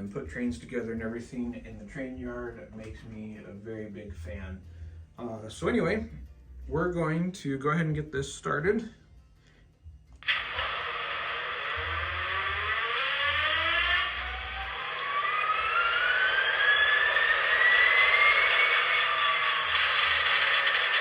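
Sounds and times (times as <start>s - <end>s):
model locomotive diesel start-up sound: 10.2s - 21.0s.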